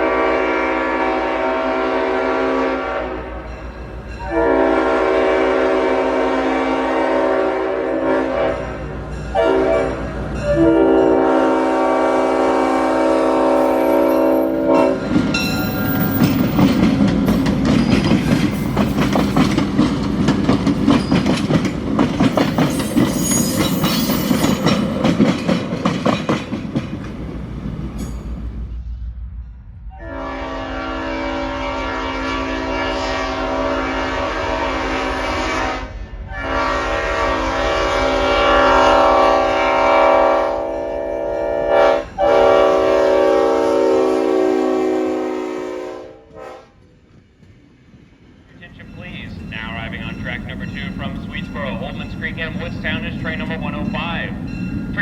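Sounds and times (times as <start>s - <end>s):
locomotive air horn: 0.0s - 3.4s, 4.2s - 8.8s, 9.4s - 16.2s, 30.0s - 46.8s
train wheels clattering on rails: 13.7s - 28.6s, 46.7s - 55.0s.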